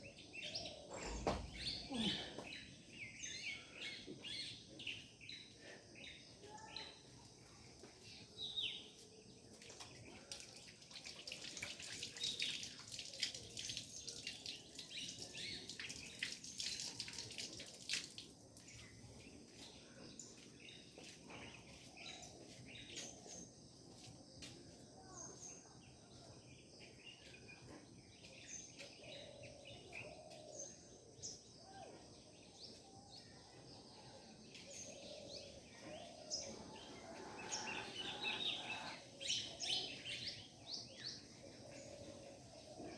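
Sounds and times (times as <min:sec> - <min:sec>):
birds chirping and whistling: 0:35.1 - 0:40.5.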